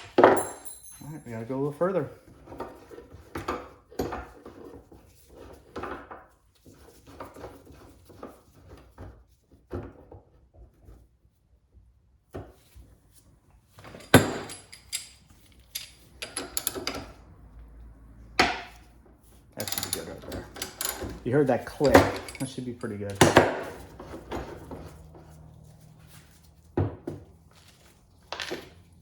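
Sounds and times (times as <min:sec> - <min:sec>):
metal clicks and creaks: 0:13.9 - 0:17.8, 0:19.5 - 0:25.4.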